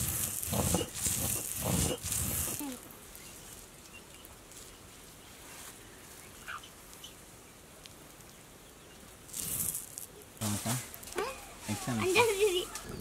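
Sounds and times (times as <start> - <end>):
faint bird calls: 5.6 - 7.2.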